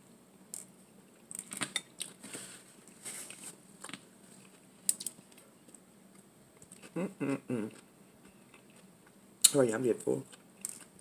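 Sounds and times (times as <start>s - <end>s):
person chewing food: 7.6s - 9.2s.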